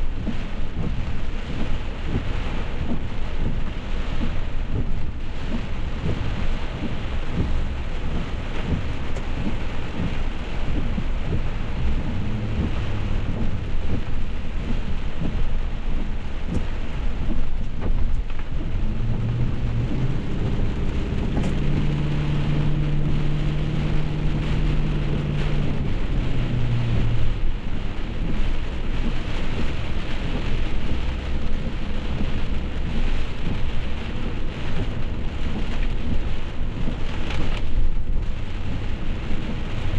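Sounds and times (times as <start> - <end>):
heavy rain: 0.0 - 39.9
low rumble: 0.0 - 39.9
low hum rising in pitch: 11.2 - 15.6, 18.2 - 27.9.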